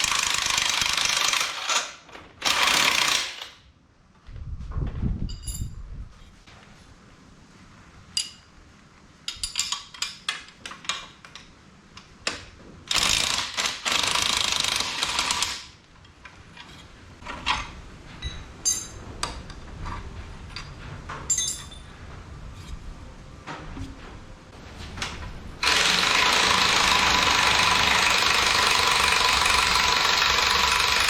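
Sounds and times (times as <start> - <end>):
hand tools clinking on metal: 18.2 - 19.0, 21.3 - 21.9.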